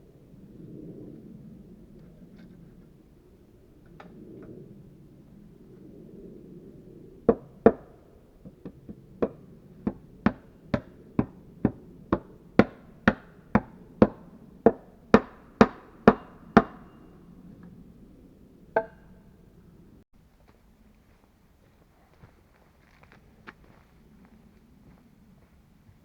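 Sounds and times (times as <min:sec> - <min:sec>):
wooden mallet knocking wood: 0:08.6 - 0:16.9.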